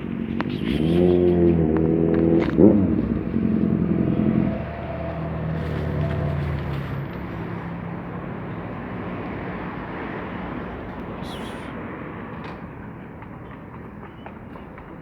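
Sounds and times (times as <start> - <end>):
vehicle passing: 0.0 - 14.0.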